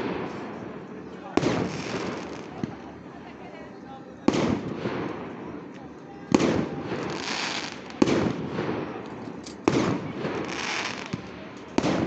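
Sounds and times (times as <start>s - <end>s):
firework shells bursting: 1.4s - 2.8s.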